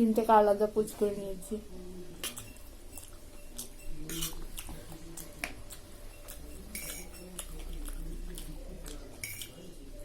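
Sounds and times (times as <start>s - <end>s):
cutlery clinking on plate: 6.1s - 7.5s, 9.2s - 9.6s.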